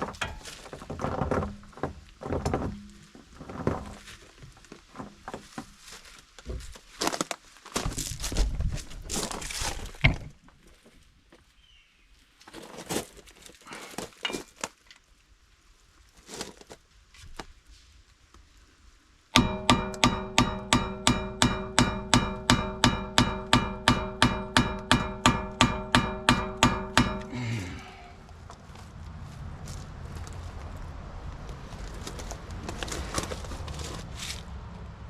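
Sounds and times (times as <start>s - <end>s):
tool knocks and clatter: 0.0s - 4.0s, 19.4s - 27.4s
steel rotor ringing: 19.4s - 27.4s
rapid hammer blows on metal: 19.4s - 27.9s.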